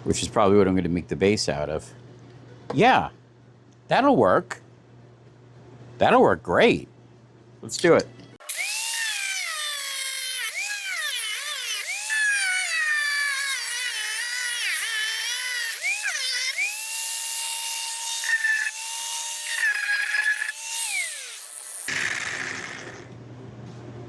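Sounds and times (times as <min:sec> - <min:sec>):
angle grinder grinding metal: 0:08.4 - 0:23.1.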